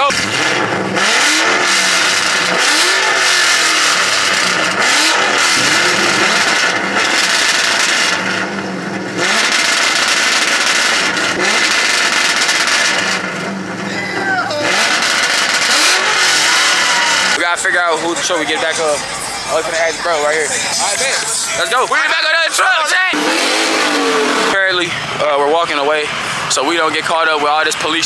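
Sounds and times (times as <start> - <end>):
vehicle engine revving: 0.0 - 17.4, 23.2 - 25.2
loud rushing noise: 4.0 - 10.6.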